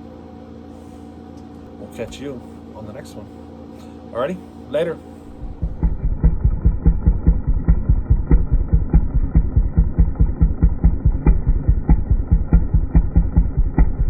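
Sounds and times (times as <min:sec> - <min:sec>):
engine idling: 0:05.3 - 0:14.0.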